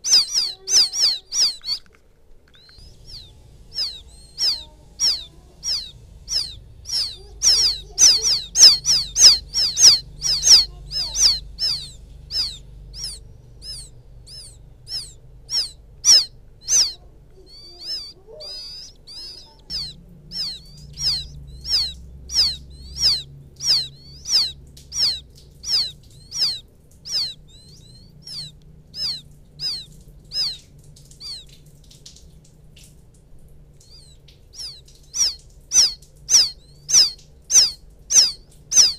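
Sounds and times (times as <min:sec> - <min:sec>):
quail chicks peeping: 0:00.0 - 0:38.9.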